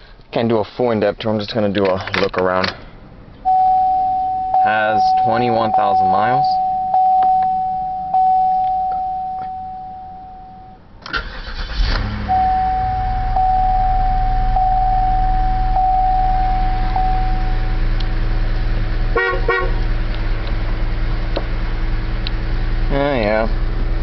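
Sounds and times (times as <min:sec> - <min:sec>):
car engine starting and idling: 0:01.2 - 0:24.0
car warning chime: 0:03.4 - 0:17.9
car horn toots: 0:19.1 - 0:19.8.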